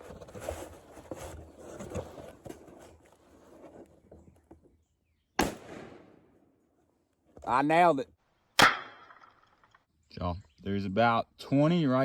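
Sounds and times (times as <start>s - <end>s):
rustling: 0.0s - 4.7s.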